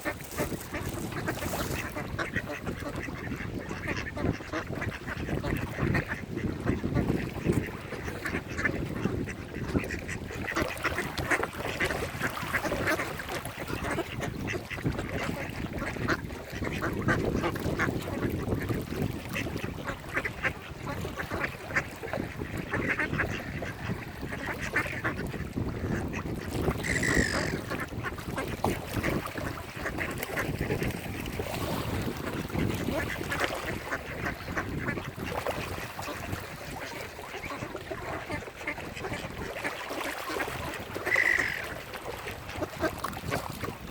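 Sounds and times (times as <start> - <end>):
ducks quacking: 0.0 - 31.3, 32.1 - 43.5
high-pitched call: 26.8 - 27.6.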